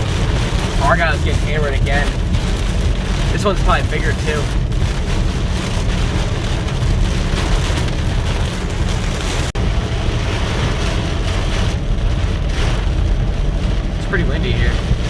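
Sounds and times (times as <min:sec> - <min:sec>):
heavy rain: 0:00.0 - 0:15.0
wind buffeting microphone: 0:00.0 - 0:15.0.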